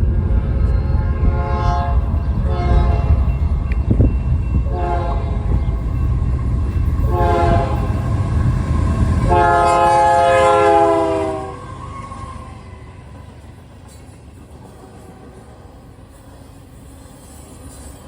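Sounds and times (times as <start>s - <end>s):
heavy train rumble: 0.0s - 18.0s
locomotive air horn chord: 1.2s - 3.2s, 4.7s - 5.6s, 7.0s - 8.2s, 9.2s - 11.7s.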